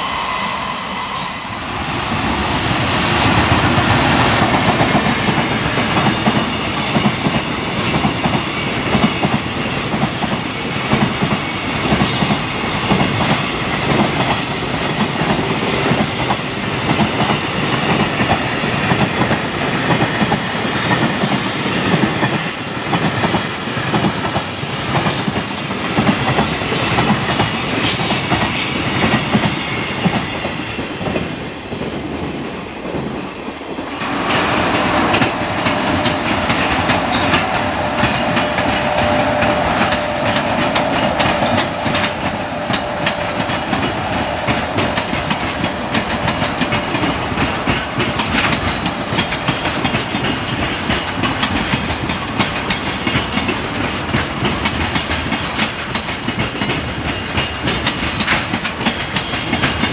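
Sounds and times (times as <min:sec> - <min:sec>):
steady train rumble with hum: 0:00.0 - 0:59.9
freight train wheels clattering: 0:02.6 - 0:59.9
high wheel squeaks: 0:35.2 - 0:42.0.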